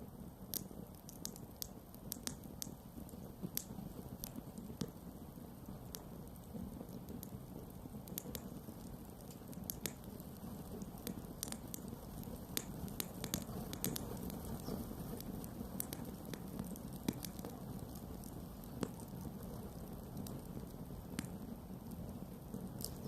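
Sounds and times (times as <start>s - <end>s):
campfire crackling: 0.1s - 23.0s.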